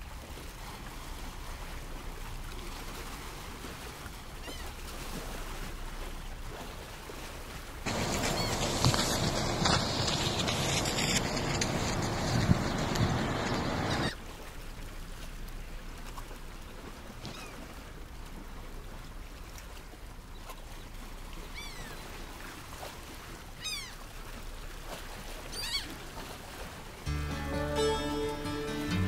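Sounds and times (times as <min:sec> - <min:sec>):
short falling bird calls: 0:07.9 - 0:10.7
loud rushing noise: 0:07.9 - 0:14.1
outdoor ambience: 0:07.9 - 0:14.2, 0:27.1 - 0:29.0
music: 0:27.1 - 0:29.0.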